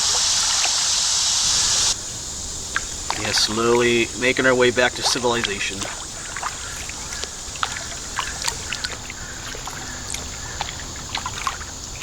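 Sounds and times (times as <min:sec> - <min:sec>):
small drips and splashes: 0:00.0 - 0:01.0, 0:01.6 - 0:12.0
steady high hiss: 0:00.0 - 0:12.0
water trickling and lapping: 0:00.0 - 0:12.0.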